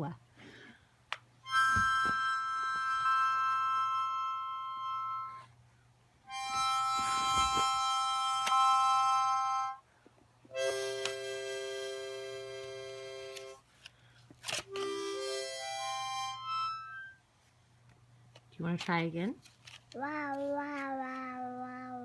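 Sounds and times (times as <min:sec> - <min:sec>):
harmonica chords: 0:01.4 - 0:05.5, 0:06.2 - 0:09.9, 0:10.5 - 0:13.6, 0:14.7 - 0:17.3.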